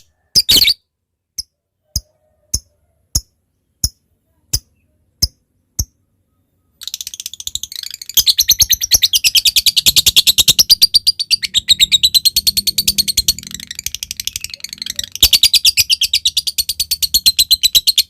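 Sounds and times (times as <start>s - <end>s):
bird rapid chattering trill: 6.8s - 18.0s.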